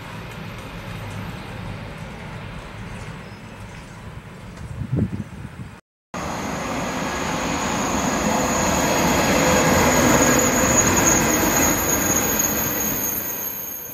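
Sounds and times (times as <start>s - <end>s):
high-speed train passing: 0.0s - 4.5s, 6.2s - 13.9s
thin high whine: 6.2s - 13.9s.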